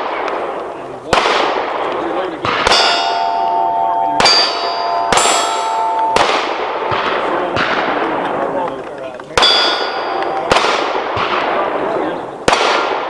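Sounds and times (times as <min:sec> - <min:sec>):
pistol shots: 0:00.0 - 0:08.7, 0:09.4 - 0:13.0
steel plate clanging: 0:02.7 - 0:06.8.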